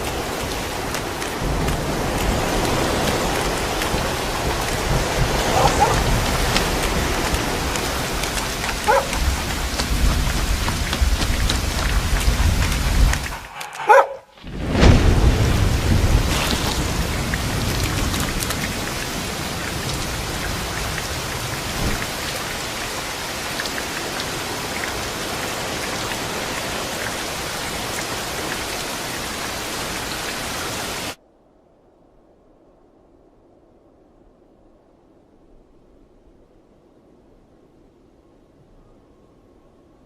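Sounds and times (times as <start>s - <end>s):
thunder rumbling: 0.0s - 28.6s
heavy rain: 0.0s - 31.2s.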